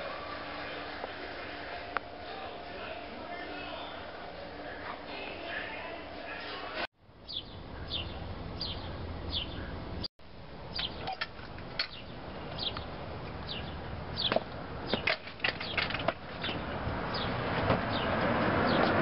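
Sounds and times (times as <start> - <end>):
small bird chirping: 7.2 - 9.8, 10.7 - 11.2, 11.9 - 15.8.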